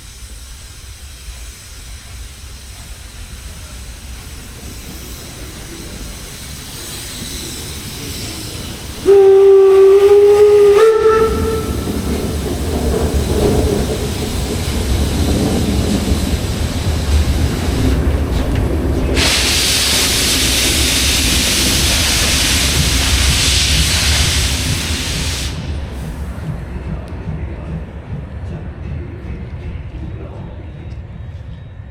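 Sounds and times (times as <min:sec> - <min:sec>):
steam hissing: 0:00.0 - 0:27.8
steam locomotive whistle: 0:06.8 - 0:14.5.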